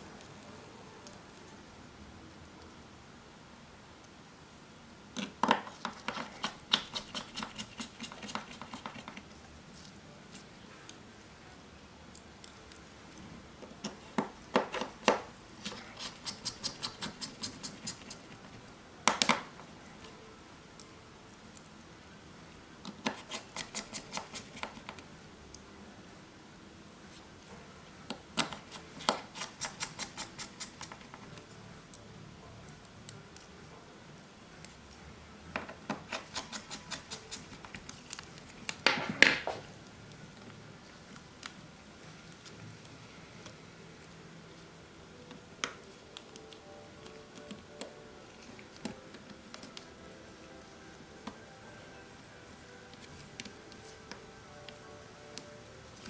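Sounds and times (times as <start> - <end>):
small tools clicking and tapping: 5.2 - 9.3, 13.8 - 18.4, 22.8 - 25.0, 28.1 - 31.4, 35.6 - 39.0.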